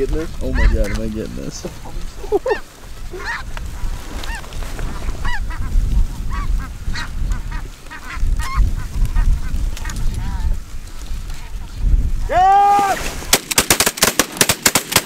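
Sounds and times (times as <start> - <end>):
wind buffeting microphone: 0.0 - 13.4
snow geese honking: 0.2 - 11.8.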